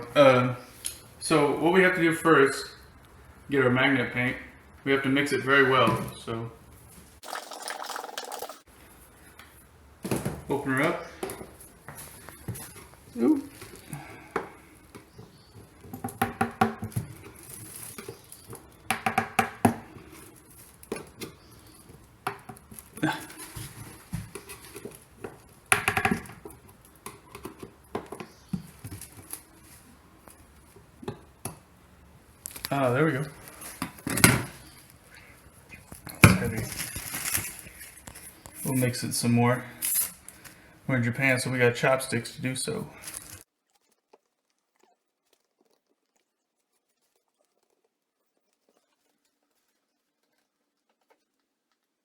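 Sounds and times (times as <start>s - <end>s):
chopsticks stirring thick paint: 42.9s - 52.0s.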